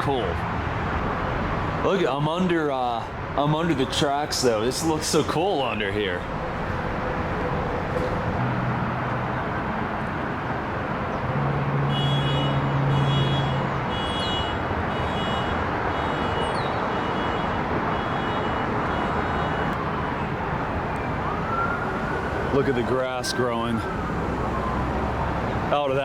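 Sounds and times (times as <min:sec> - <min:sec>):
city traffic noise: 0:00.0 - 0:26.0
vehicle engine droning past: 0:06.4 - 0:10.0.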